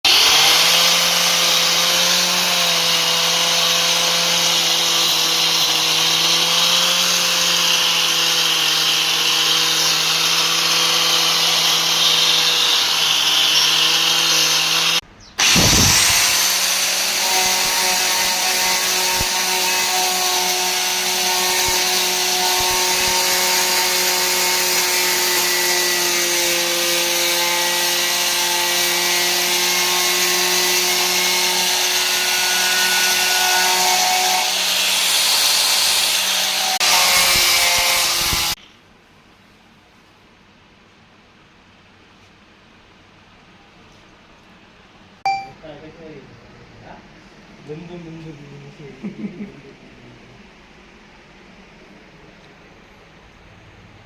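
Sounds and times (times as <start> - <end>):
electric power tool running: 0.1 - 25.7.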